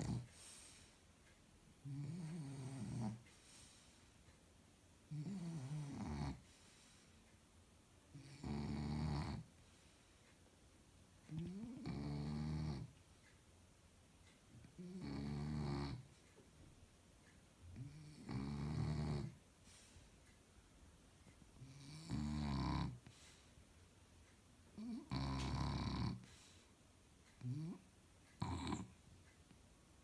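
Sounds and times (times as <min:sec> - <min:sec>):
dog snoring: 0:00.0 - 0:00.3, 0:01.8 - 0:03.3, 0:05.1 - 0:06.5, 0:08.1 - 0:09.5, 0:11.3 - 0:12.9, 0:14.8 - 0:16.1, 0:17.8 - 0:19.4, 0:21.6 - 0:23.4, 0:24.8 - 0:26.6, 0:27.4 - 0:27.8, 0:28.4 - 0:29.0.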